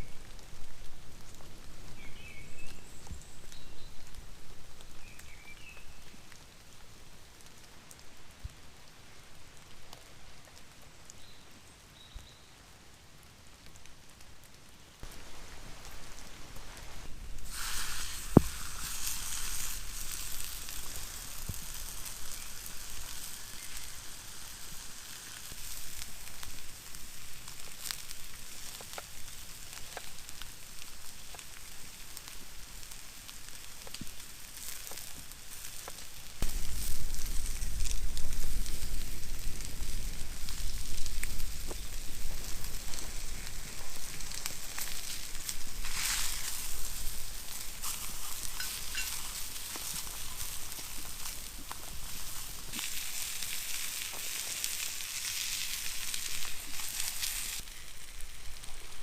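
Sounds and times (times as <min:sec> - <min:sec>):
crackles and pops: 0:00.0 - 0:59.0
light rain pattering: 0:00.0 - 0:59.0
meat sizzling in skillet: 0:15.1 - 0:59.0.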